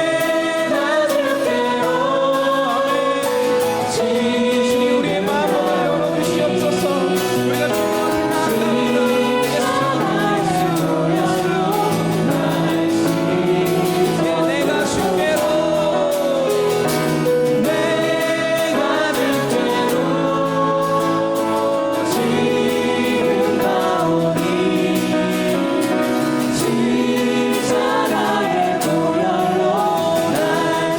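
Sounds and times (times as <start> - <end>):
group singing gospel song: 0.0 - 30.9
instrumental accompaniment: 0.0 - 30.9.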